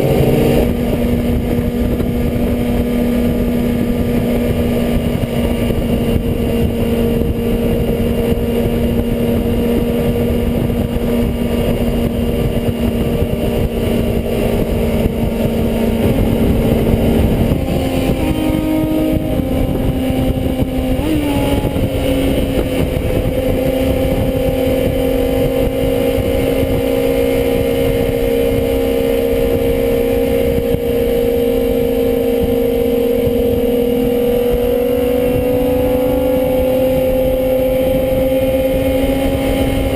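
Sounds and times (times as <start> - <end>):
motorcycle engines running: 0.0 - 39.9.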